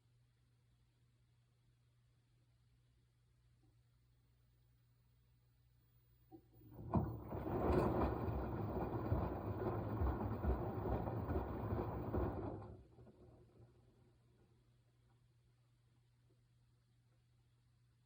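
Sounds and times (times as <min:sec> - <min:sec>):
washing machine drum churning: 0:06.4 - 0:14.5.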